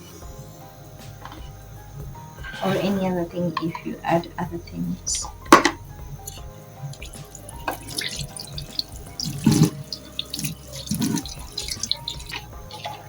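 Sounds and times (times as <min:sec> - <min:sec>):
tap water splashing into sink: 0:06.9 - 0:13.0.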